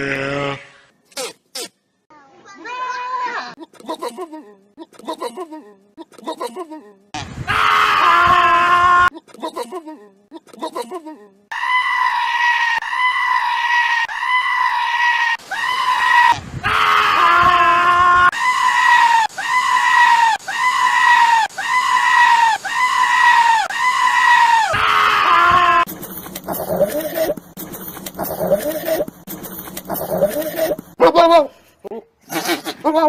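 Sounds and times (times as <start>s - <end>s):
goat screaming: 11.5s - 25.9s, 32.2s - 33.0s.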